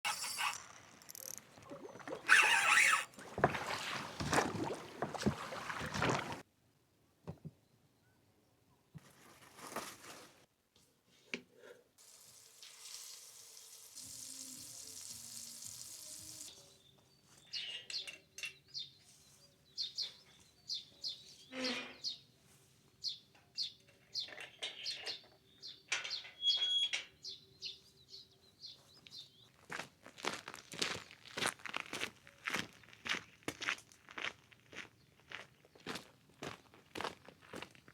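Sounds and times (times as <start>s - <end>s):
small songbirds chirping: 16.1s - 29.9s.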